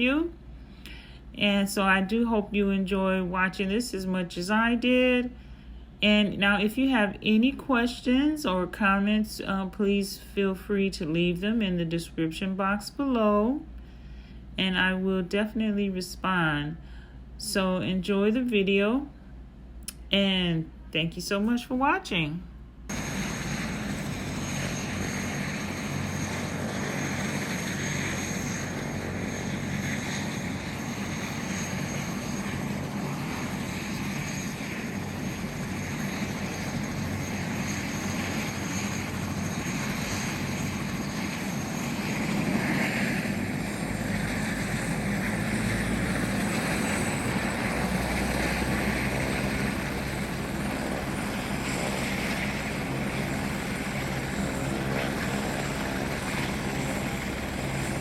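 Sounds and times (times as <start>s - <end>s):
helicopter rotor drone: 0.0s - 16.4s, 22.9s - 58.0s
high turbine whine: 22.8s - 58.0s.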